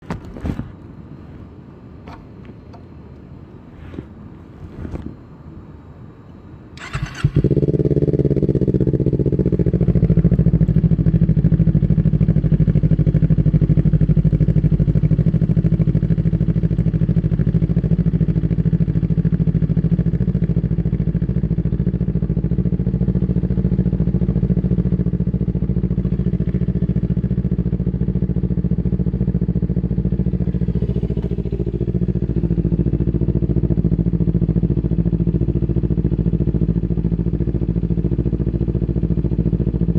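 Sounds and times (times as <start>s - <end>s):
motorcycle engine idling: 6.8s - 39.9s.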